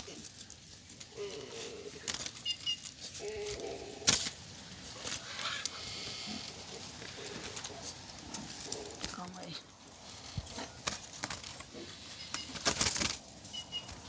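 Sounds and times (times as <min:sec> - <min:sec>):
bird chirping: 0:02.3 - 0:03.8, 0:11.7 - 0:14.0
bird flapping wings: 0:10.0 - 0:14.0.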